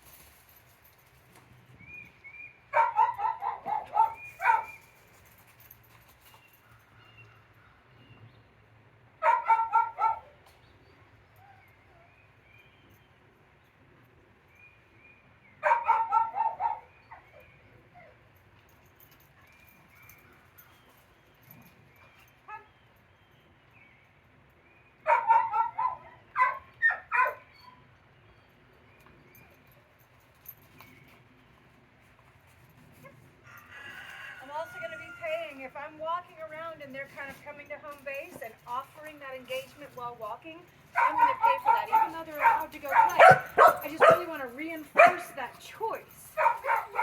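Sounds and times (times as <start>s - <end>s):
dog barking: 2.7s - 4.8s, 9.2s - 10.4s, 15.6s - 16.9s, 25.1s - 27.5s, 41.0s - 44.4s, 45.0s - 45.4s, 46.4s - 47.0s.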